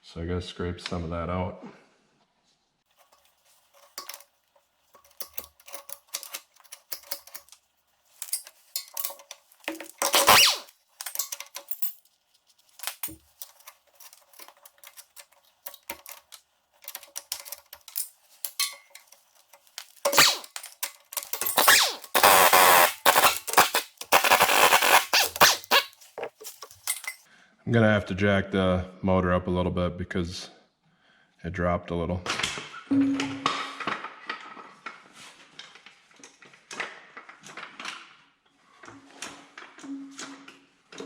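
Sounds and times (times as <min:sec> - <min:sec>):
hand tool scraping metal: 0:03.0 - 0:04.3, 0:05.0 - 0:07.6, 0:08.2 - 0:27.2
metal clinks: 0:03.0 - 0:27.3.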